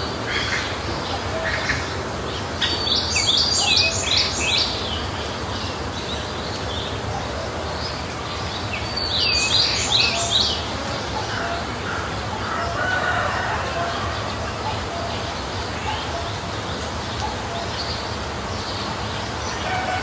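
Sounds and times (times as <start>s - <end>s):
low background noise: 0.0s - 20.0s
songbird singing whistled notes: 2.6s - 5.0s, 8.7s - 10.6s.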